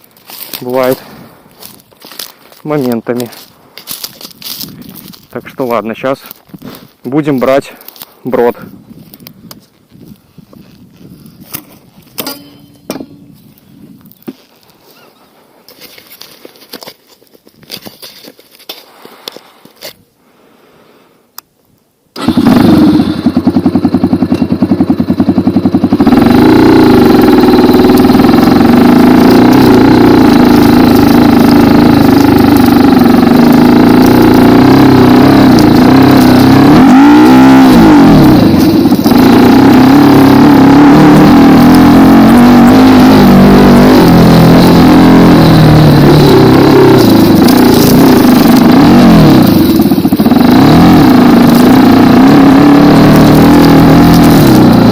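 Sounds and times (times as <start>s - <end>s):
dirt bike engine revving: 22.2s - 54.9s.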